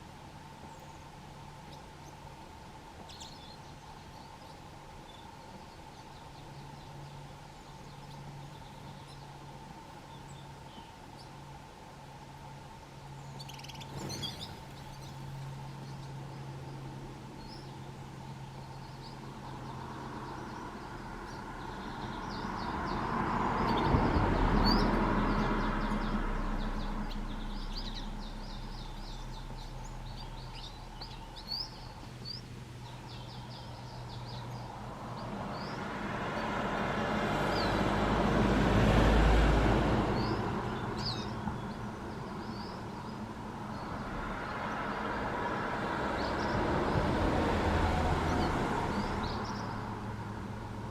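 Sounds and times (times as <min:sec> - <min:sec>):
birds chirping: 0:00.0 - 0:11.6, 0:12.2 - 0:50.9
vehicles passing on road: 0:00.0 - 0:50.9.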